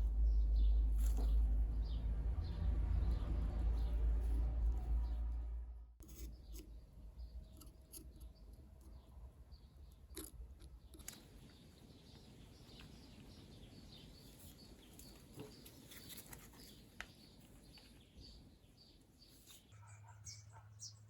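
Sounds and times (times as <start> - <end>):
low hum: 0.0 - 6.1
faint small clicks and ticks: 9.8 - 13.3.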